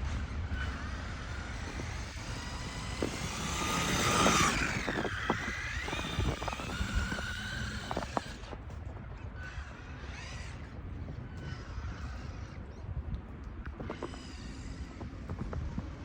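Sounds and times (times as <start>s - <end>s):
electric motor whining: 0.0s - 8.7s.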